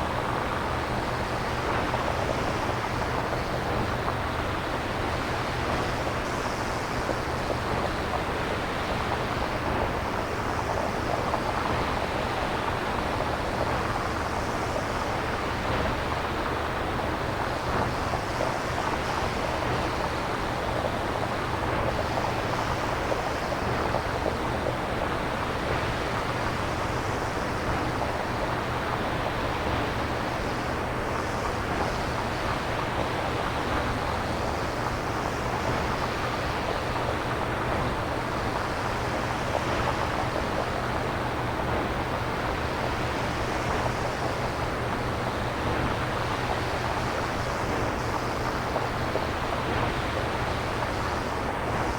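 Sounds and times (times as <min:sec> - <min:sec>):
synthesized ocean surf hiss: 0:29.9 - 0:51.9.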